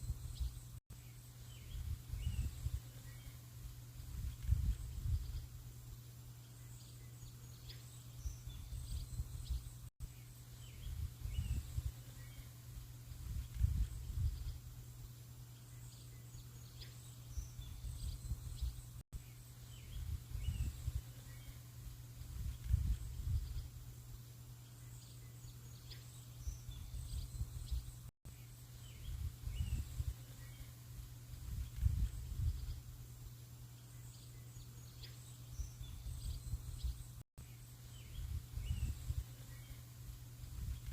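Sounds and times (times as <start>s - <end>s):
faint bird chirps: 0.0s - 40.9s
wind buffeting microphone: 1.6s - 2.9s, 4.0s - 5.5s, 10.8s - 12.0s, 13.1s - 14.7s, 19.9s - 21.1s, 22.2s - 23.7s, 29.0s - 30.2s, 31.3s - 32.9s, 38.1s - 39.3s, 40.4s - 40.9s.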